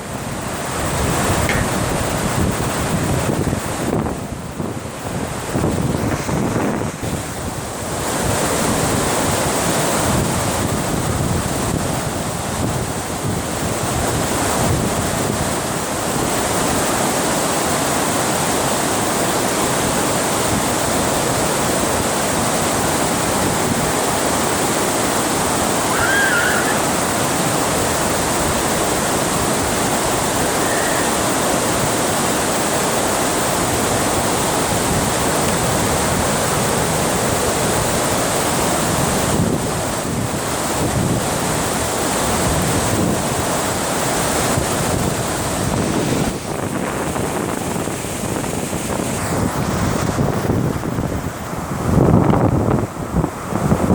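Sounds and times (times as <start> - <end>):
water roaring over a dam: 0.0 - 53.9
wind on microphone: 0.0 - 53.9.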